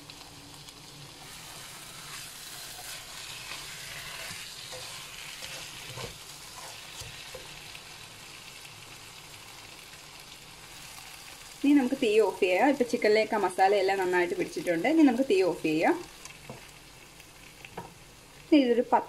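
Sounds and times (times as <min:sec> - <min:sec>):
food sizzling in a pan: 0:00.0 - 0:19.0
spatula scraping a pan: 0:01.2 - 0:07.6.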